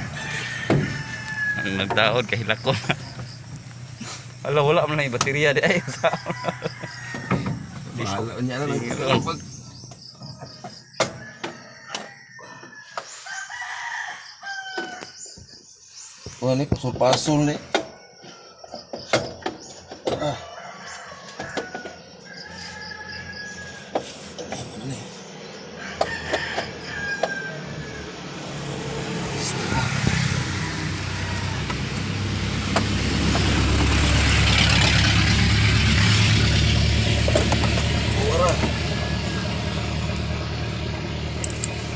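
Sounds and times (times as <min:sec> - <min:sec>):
rooster crowing: 0:00.0 - 0:02.2, 0:05.6 - 0:09.1, 0:10.2 - 0:15.2, 0:20.1 - 0:32.4, 0:37.9 - 0:40.6
vehicle engine idling: 0:00.0 - 0:11.0, 0:21.9 - 0:41.9.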